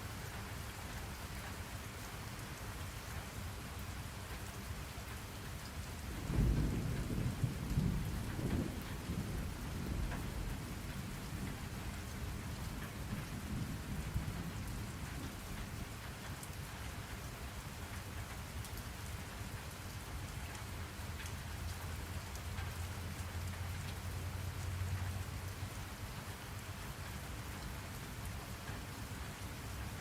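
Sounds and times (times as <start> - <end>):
steady rain falling: 0.0 - 30.0
low roll of thunder: 6.0 - 16.0.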